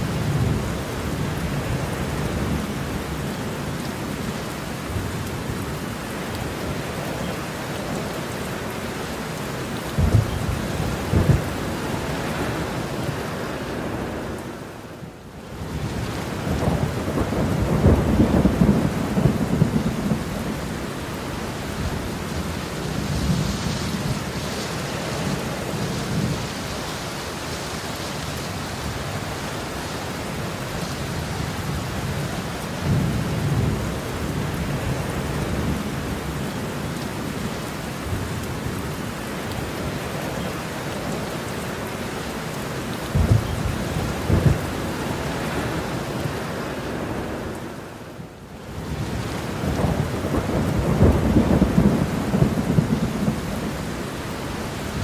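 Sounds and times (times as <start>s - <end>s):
heavy rain: 0.0s - 55.0s
rolling thunder: 9.9s - 13.2s, 15.8s - 20.8s, 43.0s - 45.8s, 48.9s - 53.9s.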